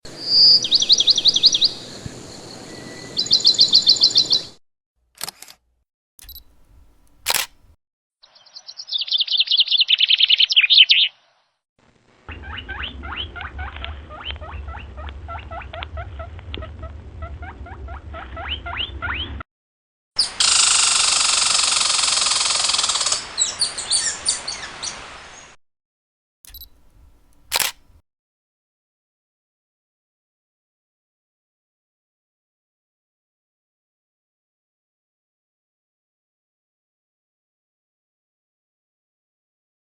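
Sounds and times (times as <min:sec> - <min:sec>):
birds chirping: 0:00.1 - 0:04.6, 0:06.4 - 0:11.4, 0:12.3 - 0:15.8, 0:22.4 - 0:25.6
sharp clicks: 0:05.2 - 0:05.6, 0:06.2 - 0:07.8, 0:26.5 - 0:28.0.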